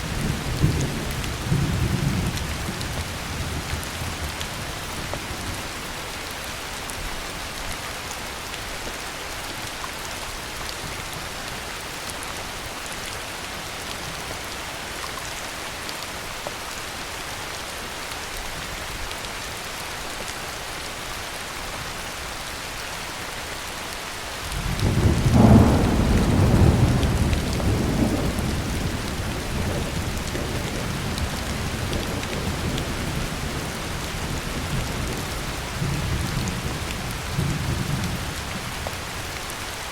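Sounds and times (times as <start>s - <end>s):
heavy rain falling: 0.0s - 39.9s
thunder rumbling: 24.6s - 38.6s.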